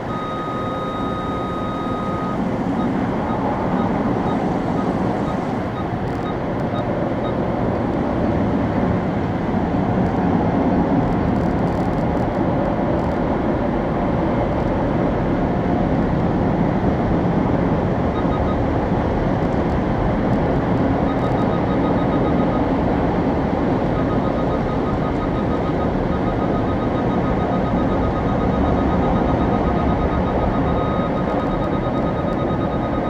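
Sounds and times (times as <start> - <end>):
faint rapid beeping: 0.0 - 7.5, 21.0 - 33.0.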